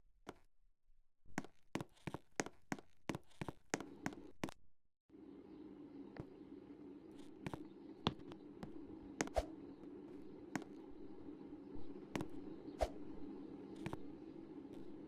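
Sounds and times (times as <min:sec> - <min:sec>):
washing machine motor hum: 0:05.2 - 0:15.0.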